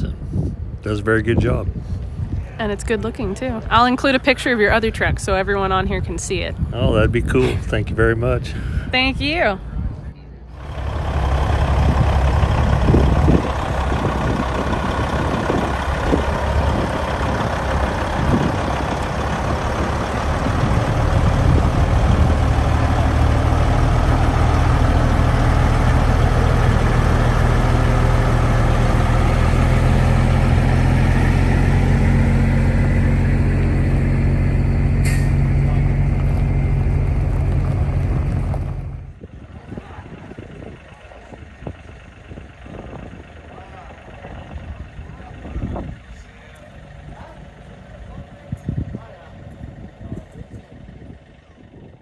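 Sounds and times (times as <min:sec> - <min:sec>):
diesel truck engine running: 0:00.0 - 0:52.0
air brake hiss: 0:35.0 - 0:35.4.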